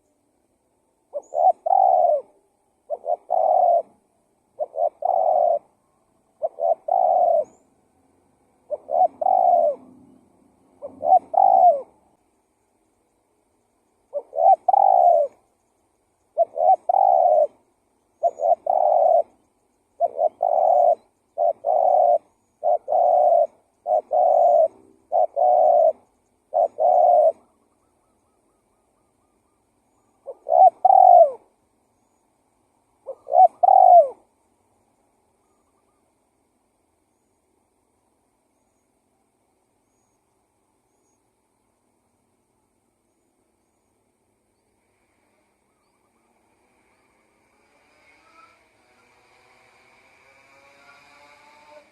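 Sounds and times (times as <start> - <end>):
dove cooing: 1.1 - 7.7, 8.6 - 12.0, 14.1 - 15.4, 16.2 - 19.4, 20.0 - 31.5, 33.0 - 34.3.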